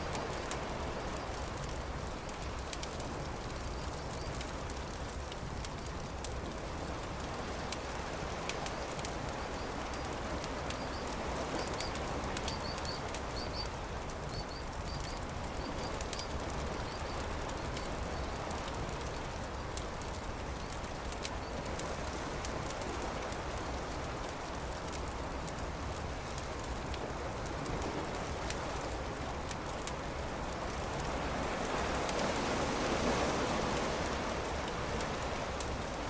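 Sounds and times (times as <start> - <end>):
campfire crackling: 0.0 - 36.0
small bird chirping: 10.7 - 13.7.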